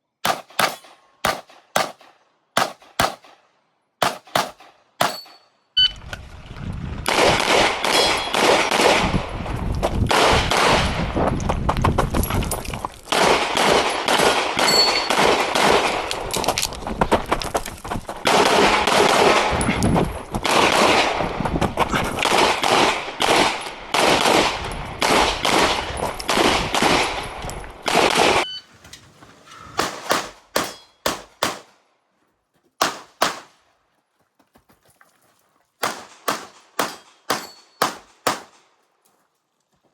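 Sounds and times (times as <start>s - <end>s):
handgun shots: 0.2s - 3.4s, 4.0s - 5.4s, 29.8s - 31.7s, 32.8s - 33.5s, 35.8s - 38.6s.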